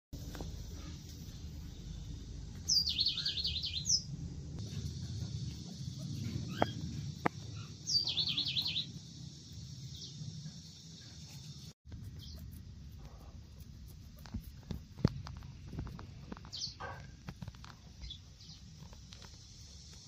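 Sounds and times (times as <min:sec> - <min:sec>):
low background rumble: 0:00.2 - 0:11.2
small bird chirping: 0:01.6 - 0:20.0.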